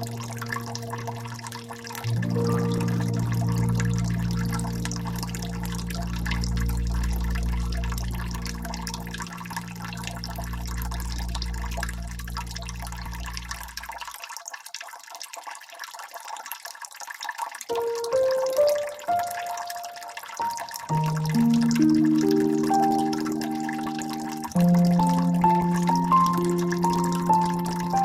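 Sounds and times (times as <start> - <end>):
rising musical notes: 0.0 - 13.6, 17.7 - 28.0
low musical drone: 0.0 - 13.8, 20.9 - 28.0
water dripping and trickling: 0.0 - 28.0.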